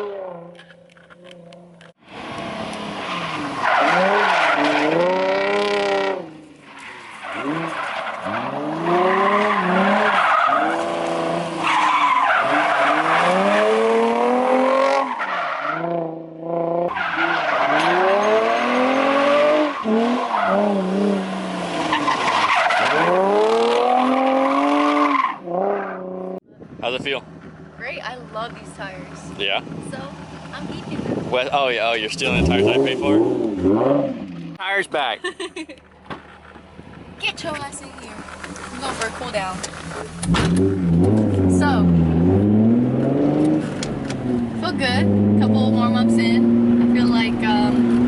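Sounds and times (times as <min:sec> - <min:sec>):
car engine revving: 0:00.0 - 0:35.2, 0:35.8 - 0:48.0
tyres squealing and skidding: 0:02.8 - 0:16.0, 0:16.8 - 0:26.1.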